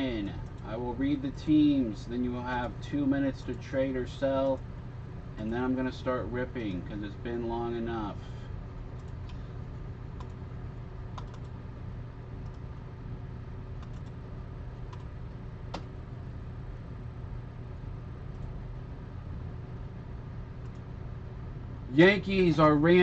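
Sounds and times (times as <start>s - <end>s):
low background hum: 0.0s - 23.0s
computer keys clicking: 8.9s - 9.4s, 10.2s - 10.4s, 11.1s - 11.6s, 12.4s - 12.6s, 13.8s - 14.2s, 14.8s - 15.9s, 20.6s - 20.9s.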